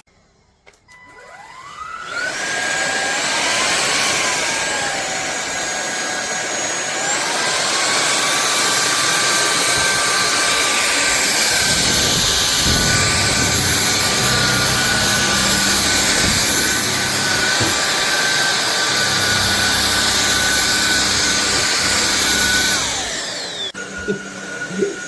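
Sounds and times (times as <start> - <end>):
vacuum cleaner motor whine: 0.9 - 25.0.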